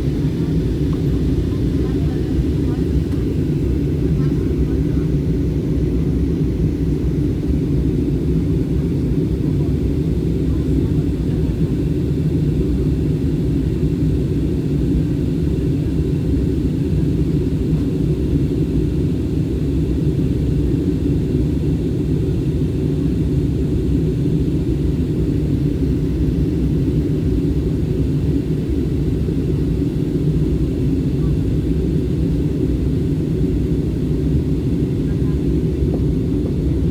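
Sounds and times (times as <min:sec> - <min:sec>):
airliner cabin engine rumble: 0:00.0 - 0:36.9.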